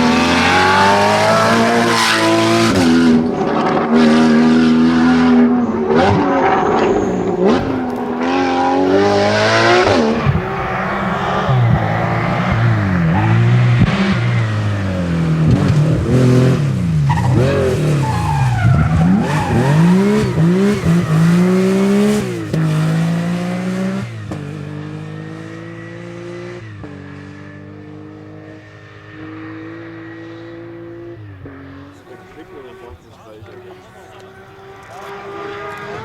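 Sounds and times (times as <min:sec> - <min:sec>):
rally car engine revving: 0:00.0 - 0:36.0.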